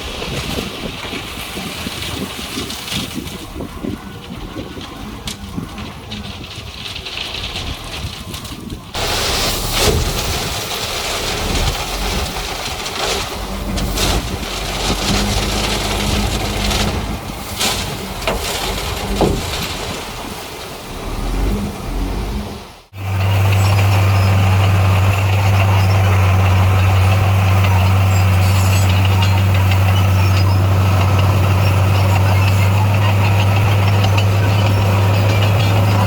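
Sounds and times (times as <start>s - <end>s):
diesel engine running: 0.0s - 36.0s
knocks and clatter: 0.0s - 36.0s
loud engine drone: 9.0s - 19.5s, 20.7s - 36.0s.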